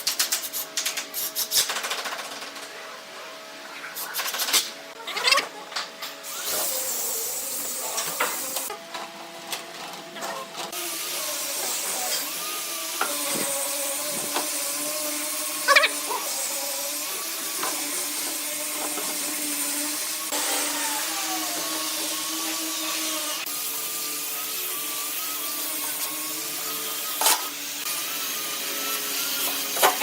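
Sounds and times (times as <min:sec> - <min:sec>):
power tool whining: 0:06.0 - 0:08.7, 0:10.6 - 0:30.0.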